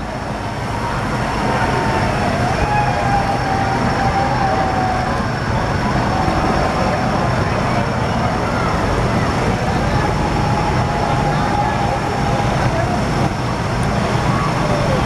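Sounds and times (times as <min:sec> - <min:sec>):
crowd noise: 0:00.0 - 0:15.0
traffic noise: 0:00.0 - 0:15.0.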